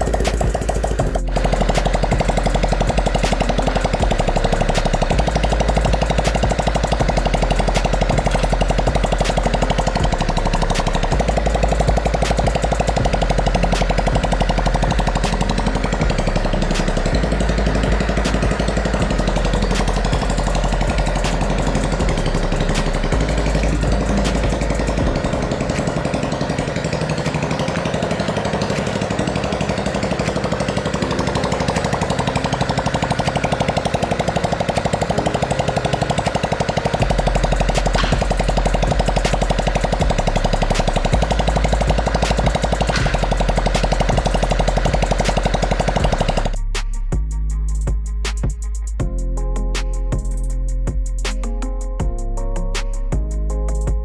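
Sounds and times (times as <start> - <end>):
deep rumble: 0.0 - 33.5
machine rattling: 0.0 - 46.6.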